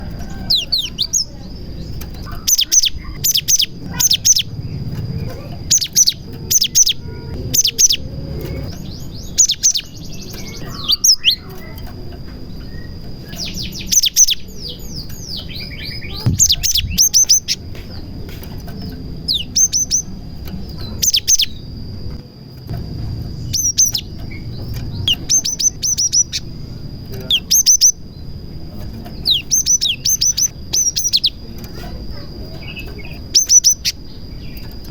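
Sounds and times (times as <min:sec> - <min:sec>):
bird singing sharp high notes: 0:12.6 - 0:17.7, 0:23.4 - 0:26.6.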